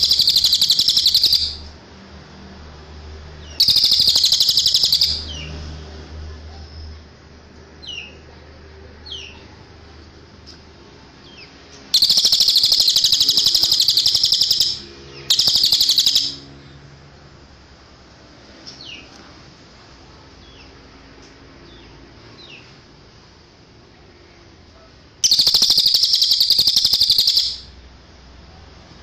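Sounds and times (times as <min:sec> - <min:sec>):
bird high-pitched trill: 0:00.0 - 0:01.7, 0:03.5 - 0:05.5, 0:11.9 - 0:16.5, 0:25.2 - 0:27.8
descending bird chirps: 0:00.0 - 0:01.7, 0:03.4 - 0:05.5, 0:11.2 - 0:16.7, 0:25.2 - 0:27.8.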